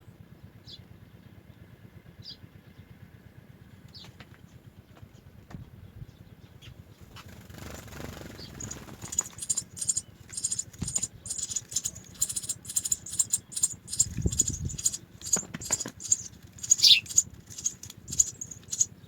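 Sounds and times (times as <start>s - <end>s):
nestlings cheeping: 7.7s - 19.0s.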